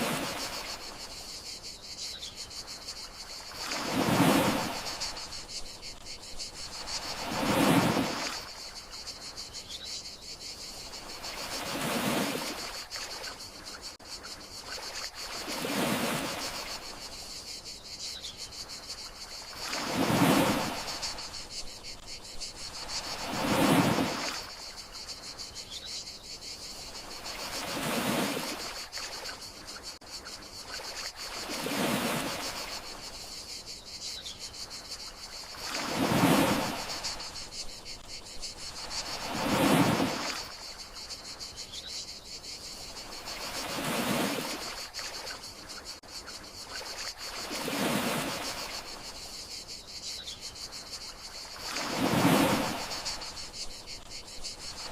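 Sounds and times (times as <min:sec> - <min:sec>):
sea waves washing ashore: 0:00.0 - 0:01.2, 0:02.8 - 0:09.2, 0:10.8 - 0:13.5, 0:14.6 - 0:17.2, 0:18.8 - 0:25.2, 0:26.7 - 0:29.7, 0:30.6 - 0:33.2, 0:35.2 - 0:41.3, 0:42.8 - 0:45.9, 0:46.7 - 0:49.2, 0:51.0 - 0:54.9
crickets trilling: 0:00.0 - 0:54.9.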